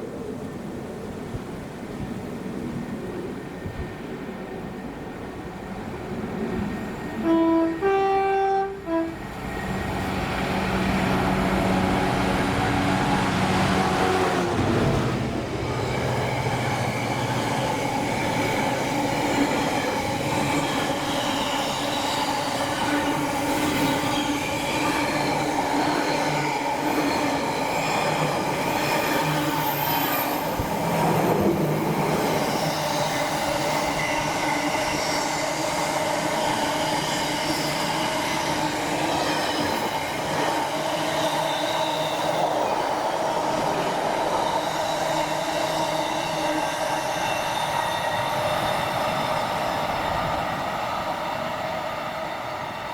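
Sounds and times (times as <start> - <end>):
train running: 0.0 - 52.9
train two-tone horn: 7.2 - 15.0.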